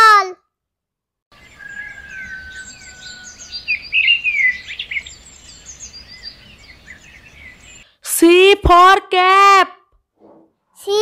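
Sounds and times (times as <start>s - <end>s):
small birds chirping: 1.3s - 8.0s.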